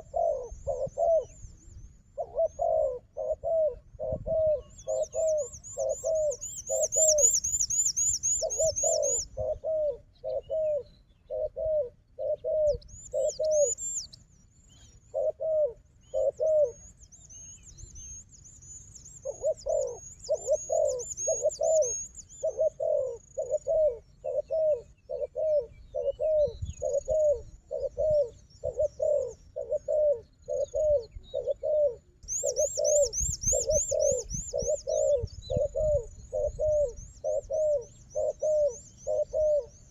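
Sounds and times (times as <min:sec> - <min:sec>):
doves cooing: 0:00.0 - 0:01.4, 0:02.2 - 0:14.0, 0:14.8 - 0:16.9, 0:19.2 - 0:39.9
small bird trilling: 0:04.4 - 0:09.4, 0:19.2 - 0:22.6, 0:32.3 - 0:39.9.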